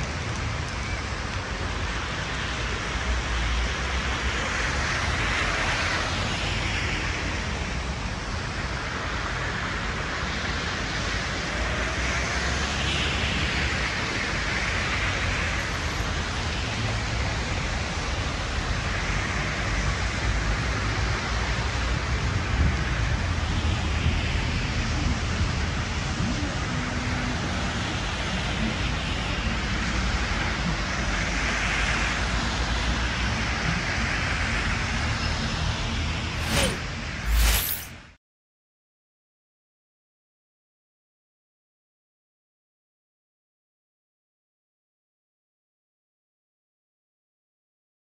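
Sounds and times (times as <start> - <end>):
heavy rain and wind hiss: 0.0 - 35.0
wind rumble on microphone: 13.0 - 31.5.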